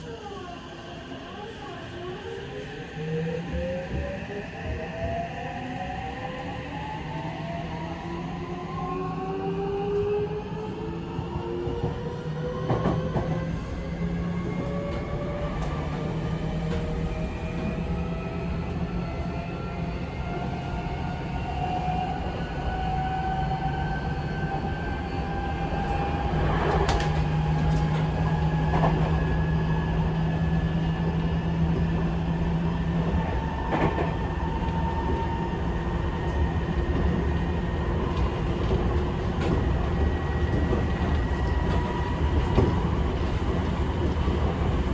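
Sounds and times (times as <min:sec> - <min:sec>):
rail-joint clacks: 0:25.7 - 0:29.3.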